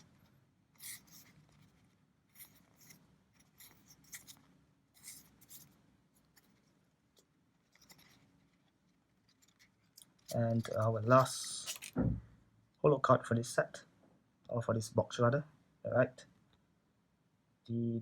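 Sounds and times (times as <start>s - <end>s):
cards rustling and scraping: 0.0s - 12.0s.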